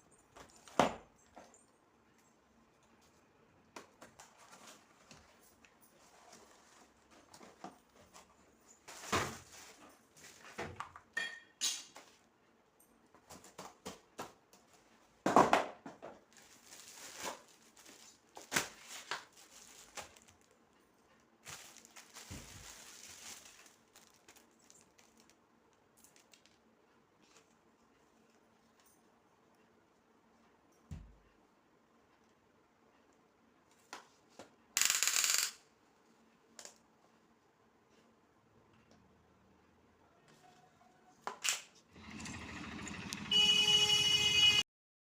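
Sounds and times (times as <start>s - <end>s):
rustling: 16.3s - 20.6s, 21.4s - 25.4s.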